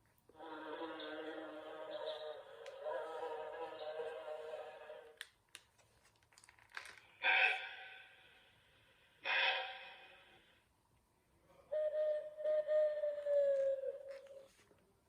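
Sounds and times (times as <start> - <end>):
held pitched animal call: 9.2 - 10.3.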